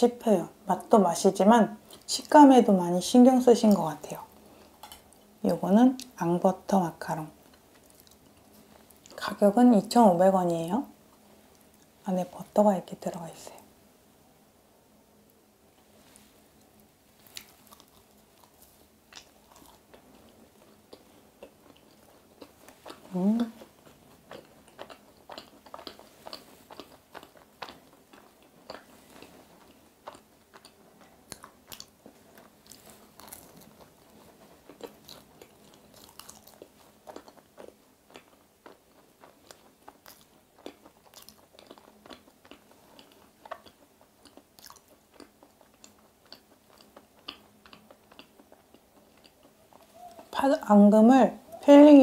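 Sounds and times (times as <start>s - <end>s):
person chewing with mouth clicks: 17.2s - 50.4s.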